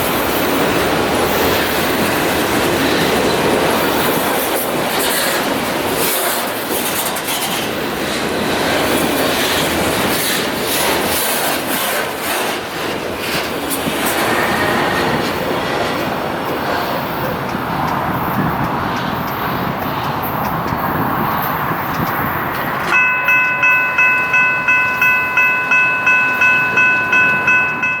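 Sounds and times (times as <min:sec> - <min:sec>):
freight train rolling past: 0:00.0 - 0:28.0
wheels clicking over rail joints: 0:00.2 - 0:28.0
bell ringing: 0:22.8 - 0:28.0.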